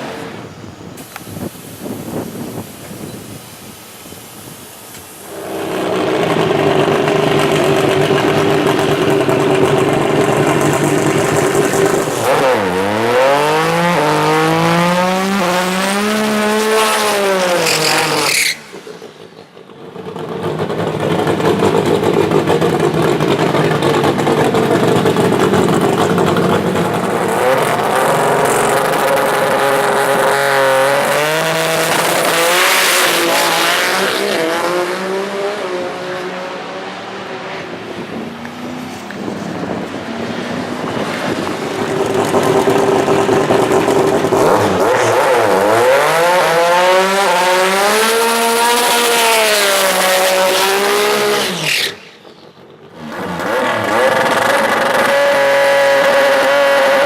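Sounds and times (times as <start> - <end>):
race car engine revving: 5.2 - 19.2, 20.0 - 52.1, 52.9 - 57.0.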